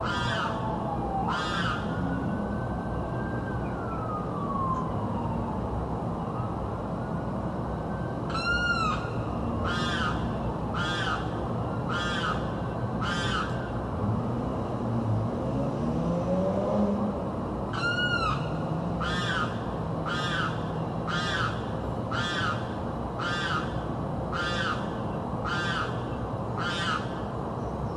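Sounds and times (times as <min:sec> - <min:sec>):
bird screaming harsh calls: 0:00.0 - 0:00.6, 0:01.2 - 0:01.9, 0:08.3 - 0:11.3, 0:11.9 - 0:13.7, 0:17.8 - 0:27.2.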